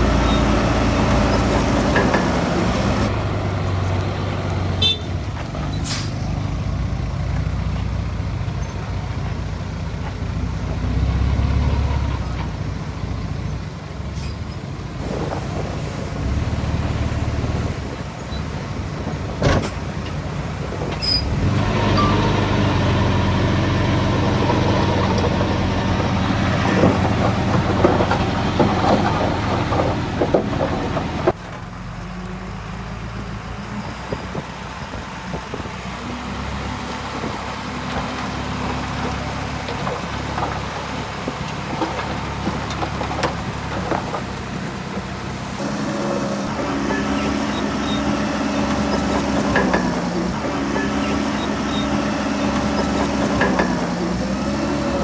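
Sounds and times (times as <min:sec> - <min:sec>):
rattling and clanking: 0:00.0 - 0:03.1, 0:17.9 - 0:31.7, 0:36.9 - 0:55.0
heavy diesel engines under load: 0:00.0 - 0:55.0.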